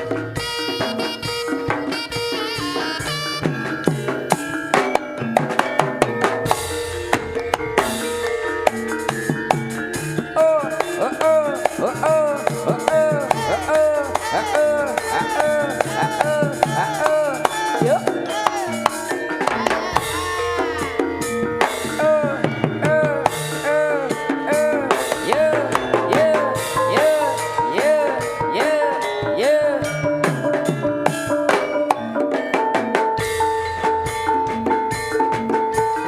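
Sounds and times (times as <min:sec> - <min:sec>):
ornamented melody: 0:00.0 - 0:36.0
rapid hand-drum strokes: 0:00.0 - 0:36.0
ringing gong tones: 0:03.1 - 0:29.2.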